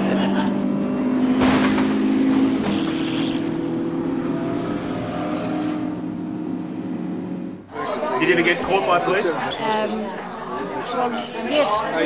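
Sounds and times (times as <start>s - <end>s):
sports car engine revving past: 0.0s - 7.6s.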